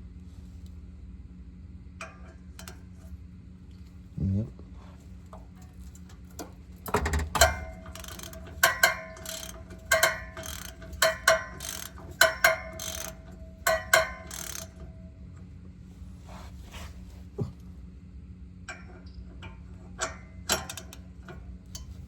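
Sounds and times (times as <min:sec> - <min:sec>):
ratchet wrench clicking: 0:07.1 - 0:14.9.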